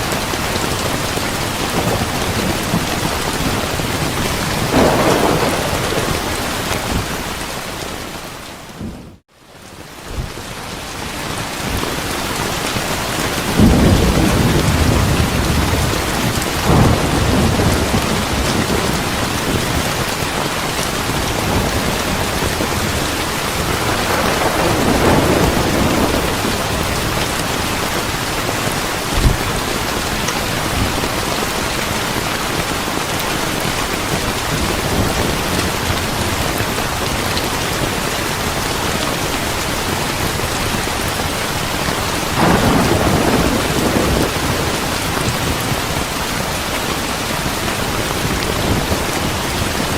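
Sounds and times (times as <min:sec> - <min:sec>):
thunder rumbling: 0:00.0 - 0:09.2, 0:13.3 - 0:41.1, 0:41.8 - 0:49.9
heavy rain: 0:00.0 - 0:49.9
thunder thump: 0:04.6 - 0:07.4, 0:29.2 - 0:29.6.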